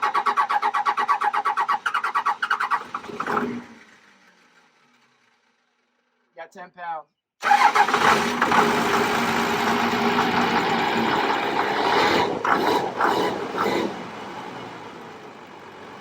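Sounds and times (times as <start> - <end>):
diesel engine running and idling: 7.4 - 16.0.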